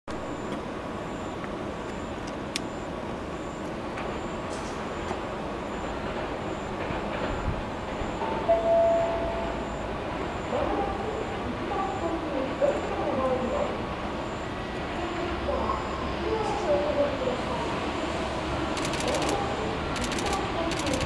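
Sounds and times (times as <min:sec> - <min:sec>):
urban background noise: 0:00.0 - 0:21.0
brief steady tone: 0:00.1 - 0:16.1
distant freight train rumble: 0:00.1 - 0:21.0.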